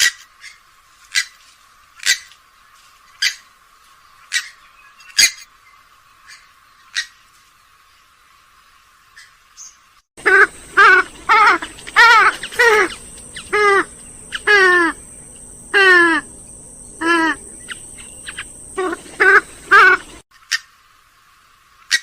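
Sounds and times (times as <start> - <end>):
swamphen calling: 9.2 - 20.6.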